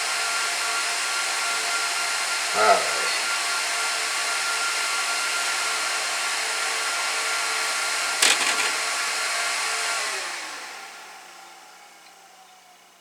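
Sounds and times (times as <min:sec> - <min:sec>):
server fans whining: 0:08.2 - 0:09.0
fans spinning down: 0:08.2 - 0:09.2.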